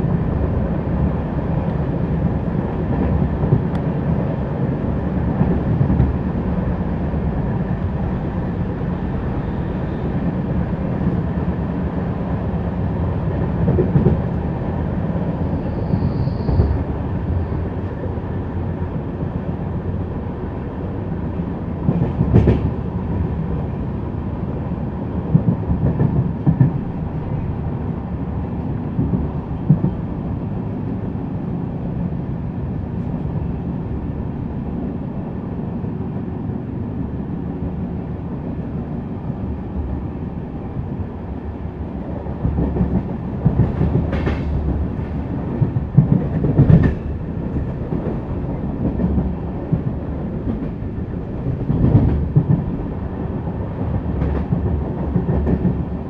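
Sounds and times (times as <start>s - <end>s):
train rumbling along track: 0.0s - 56.0s
train wheels clacking: 42.4s - 50.8s.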